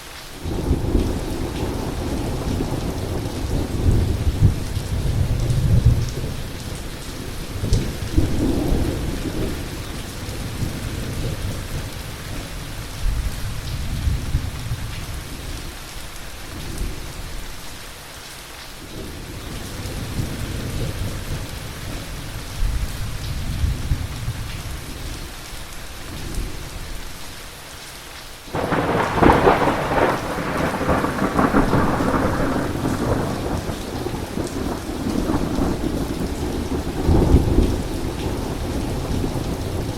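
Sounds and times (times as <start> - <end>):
heavy rain: 0.0 - 39.9
loud thunderclap: 28.5 - 39.9
thunder rumbling: 28.5 - 39.9.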